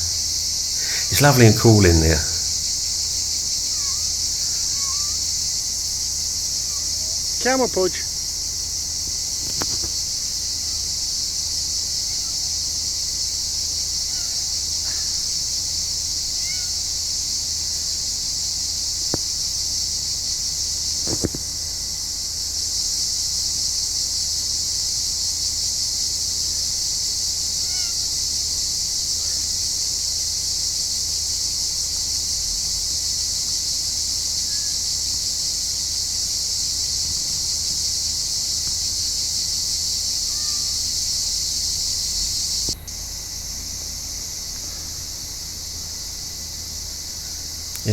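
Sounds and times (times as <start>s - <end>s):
high-pitched insect chorus: 0.0s - 47.9s
faint bird chirps: 3.6s - 5.3s, 16.2s - 16.9s, 40.2s - 40.9s.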